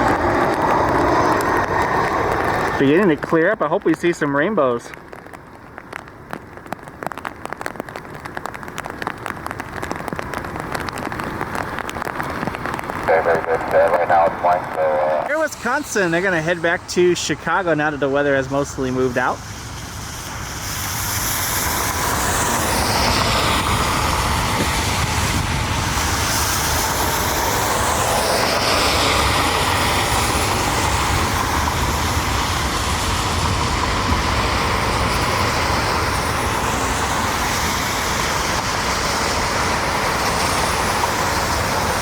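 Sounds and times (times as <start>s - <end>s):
jet engines roaring at takeoff: 0.0s - 4.9s, 12.8s - 42.0s.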